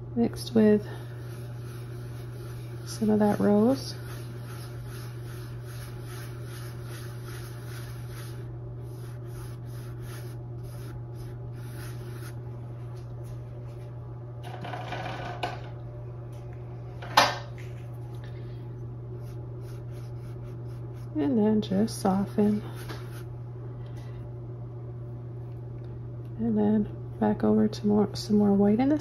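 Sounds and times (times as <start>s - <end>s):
paintbrush rubbing paint: 0.8s - 13.0s, 19.1s - 21.2s, 22.3s - 23.3s.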